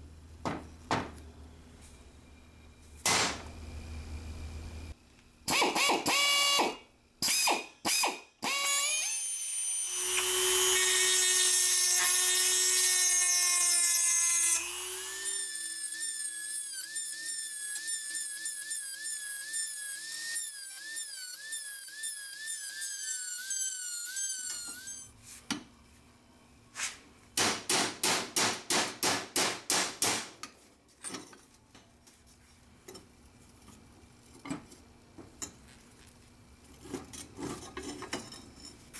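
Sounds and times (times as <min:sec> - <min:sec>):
power tool running: 0:05.5 - 0:15.4.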